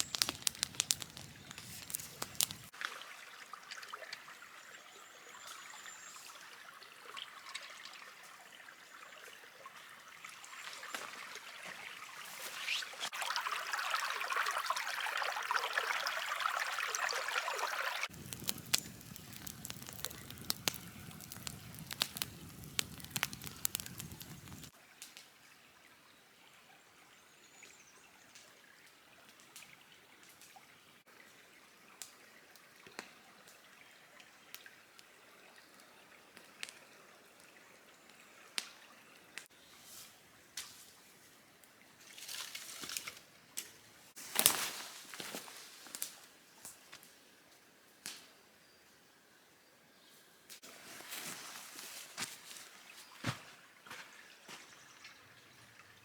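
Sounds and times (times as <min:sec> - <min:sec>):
small drips and clicks: 0:00.0 - 0:25.5, 0:27.6 - 0:39.6, 0:41.6 - 0:48.3, 0:51.3 - 0:56.0
water trickling and pouring: 0:00.0 - 0:25.9.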